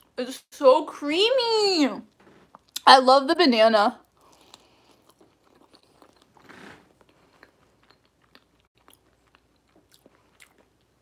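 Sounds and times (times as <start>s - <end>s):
faint chewing of soft food: 4.0s - 11.0s.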